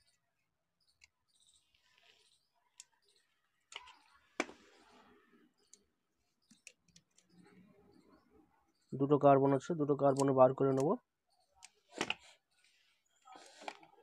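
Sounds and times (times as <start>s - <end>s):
small parts clicking and scraping: 0.8s - 5.0s.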